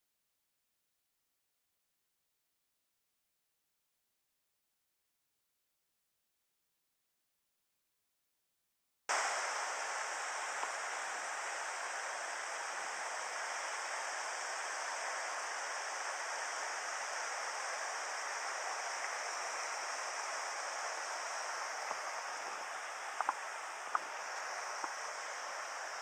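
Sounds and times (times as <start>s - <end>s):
river water rushing over rocks: 9.1s - 26.0s
faint clicks: 23.2s - 25.0s.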